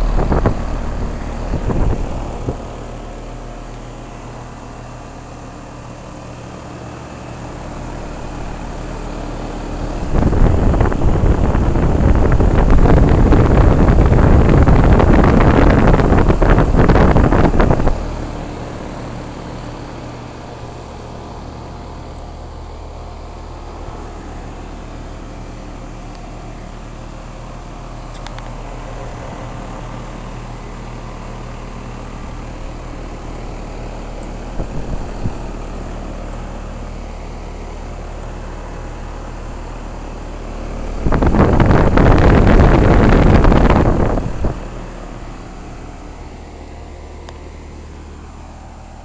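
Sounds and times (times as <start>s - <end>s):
loud rushing noise: 0.0s - 3.1s
air conditioner units humming: 0.0s - 49.0s.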